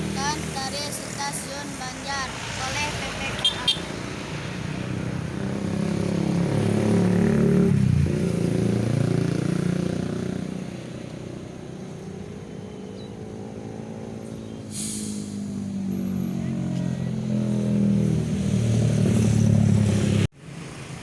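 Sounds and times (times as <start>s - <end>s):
diesel locomotive engine revving: 9.6s - 20.9s.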